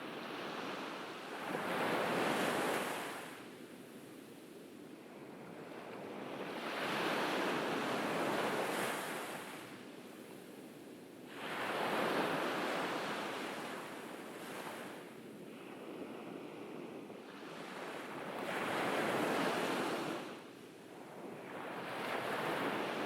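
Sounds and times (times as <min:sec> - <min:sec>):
ocean waves breaking on beach: 0:05.2 - 0:23.0.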